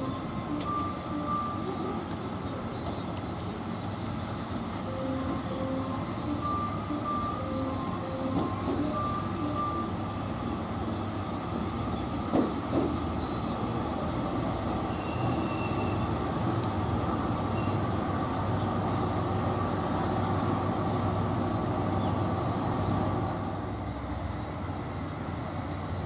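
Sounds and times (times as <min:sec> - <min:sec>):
short beeping tones: 0:00.0 - 0:02.0, 0:04.8 - 0:10.0
train rumbling: 0:00.0 - 0:26.0.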